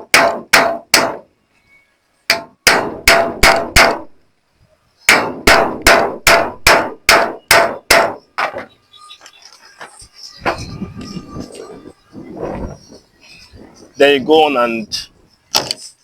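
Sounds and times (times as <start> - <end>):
hammer striking metal: 0.0 - 1.2, 2.3 - 4.1, 5.1 - 8.6.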